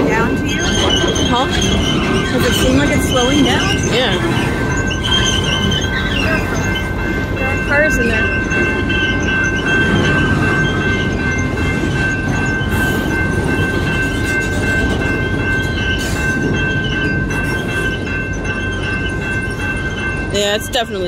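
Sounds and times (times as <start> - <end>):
wheels squealing under braking: 0.0 - 7.0
train clanks: 0.0 - 21.0
train wheels rumbling on rail: 0.0 - 21.0.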